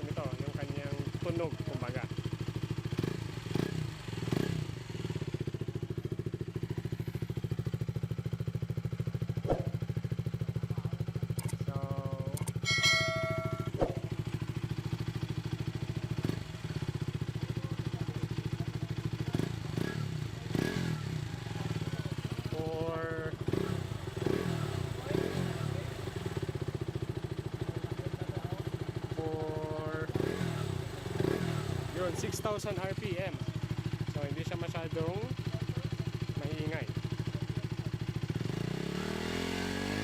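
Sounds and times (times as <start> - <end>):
motorcycle engine idling: 0.0 - 39.8
short high tone: 12.6 - 13.8.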